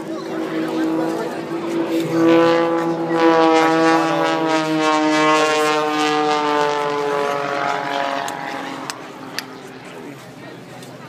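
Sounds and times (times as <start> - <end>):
aircraft engine drone: 0.0 - 11.0.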